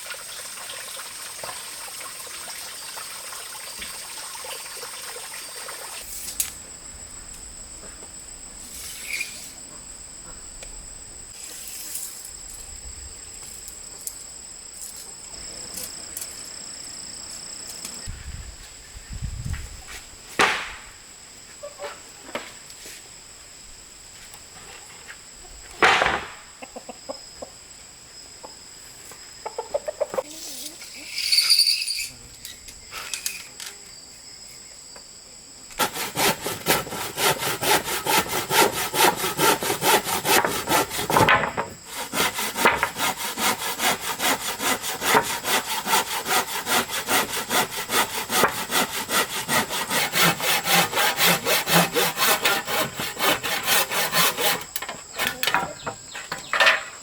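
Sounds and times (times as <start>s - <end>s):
sharp knock: 20.4s - 20.9s
hand saw cutting wood: 35.7s - 55.7s.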